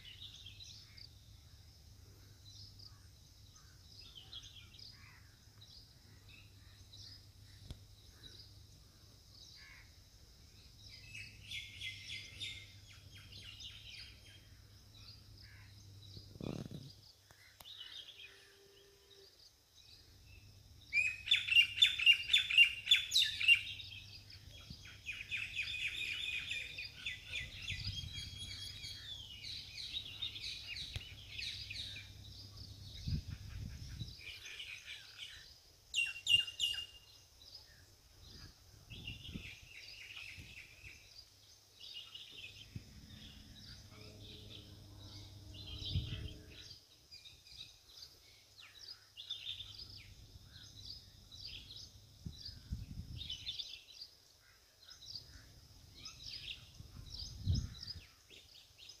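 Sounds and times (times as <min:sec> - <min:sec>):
steady high-pitched hiss: 0:00.0 - 0:59.0
birds chirping and calling: 0:10.6 - 0:18.5, 0:20.3 - 0:59.0.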